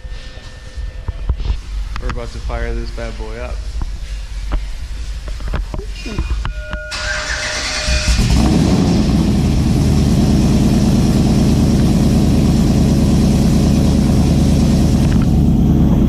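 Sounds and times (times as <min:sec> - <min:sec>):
car engine idling: 0:06.9 - 0:16.0.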